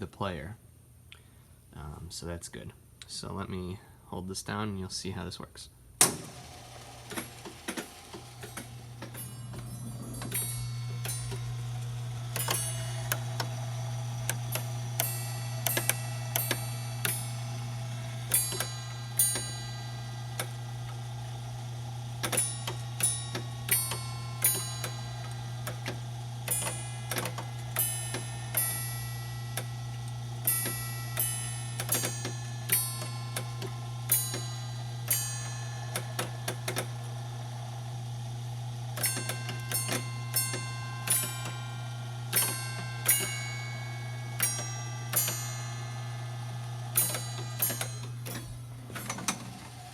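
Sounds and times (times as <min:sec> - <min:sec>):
steady low hum: 0:00.0 - 0:49.9
hammers striking metal chime rods: 0:07.1 - 0:21.3, 0:22.1 - 0:37.0, 0:38.9 - 0:49.5.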